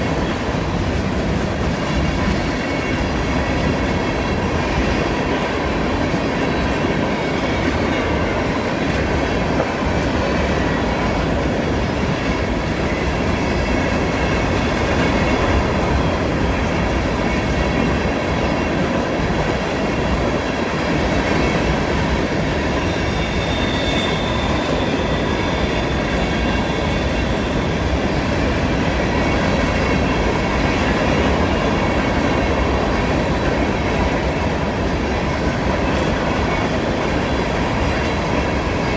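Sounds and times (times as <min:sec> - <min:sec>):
train wheels rumbling on rail: 0:00.0 - 0:38.9
high wheel squeal: 0:19.7 - 0:35.2, 0:36.1 - 0:38.9.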